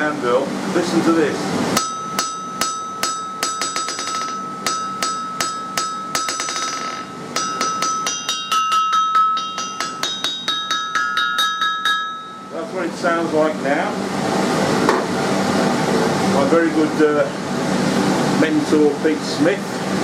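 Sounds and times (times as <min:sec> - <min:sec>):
hammer striking ringing anvil: 0:01.8 - 0:12.7.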